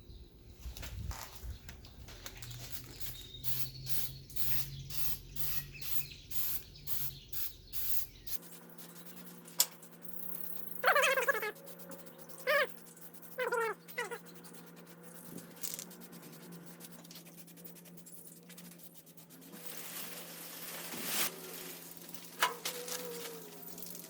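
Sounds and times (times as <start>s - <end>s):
high-pitched animal calls: 10.2s - 14.7s.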